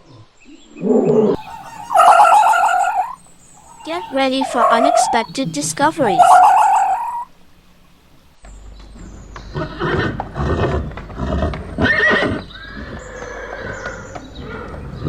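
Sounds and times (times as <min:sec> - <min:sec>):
horse neighing: 0:01.3 - 0:07.3.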